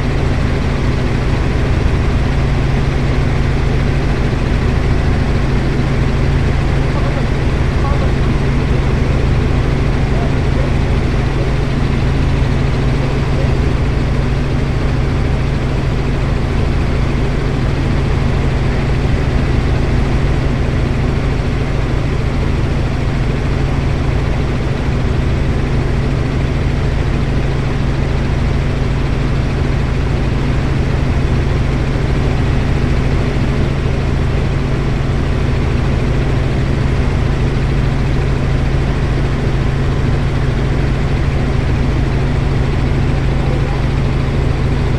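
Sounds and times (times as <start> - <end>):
helicopter engine and rotor: 0.0 - 44.9.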